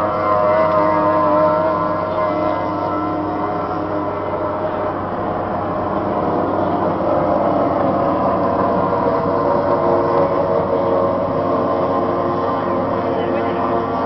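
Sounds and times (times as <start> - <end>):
outboard motors running: 0.0 - 14.0.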